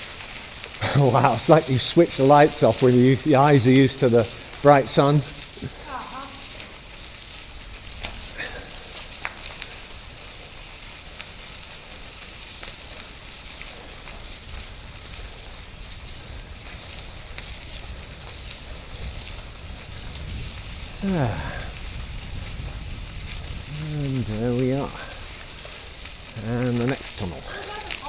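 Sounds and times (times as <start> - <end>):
bicycle tyres rolling on gravel: 0.0 - 28.0
wind rumble on microphone: 14.2 - 26.8.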